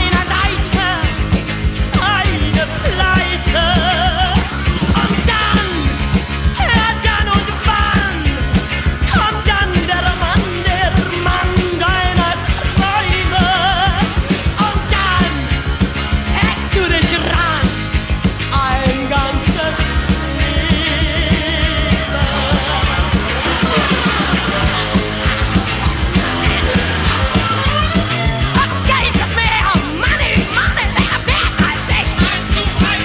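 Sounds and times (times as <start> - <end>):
loud rock music: 0.0 - 33.0.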